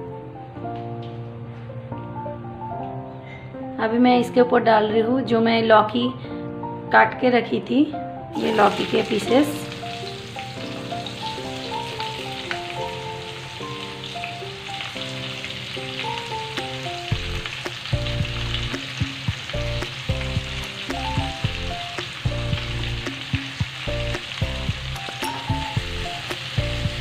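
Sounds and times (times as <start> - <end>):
food sizzling in hot oil: 8.3 - 27.0
background music with bass line: 17.1 - 27.0.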